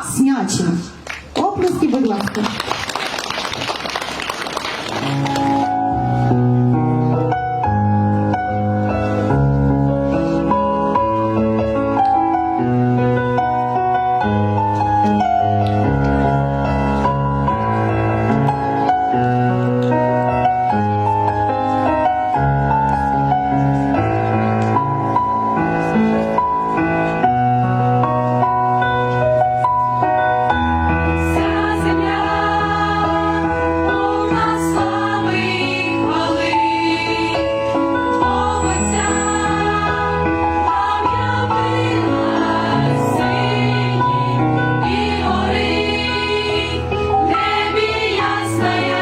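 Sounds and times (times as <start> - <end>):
musical accompaniment: 3.4 - 49.0
choir singing a carol: 31.1 - 49.0.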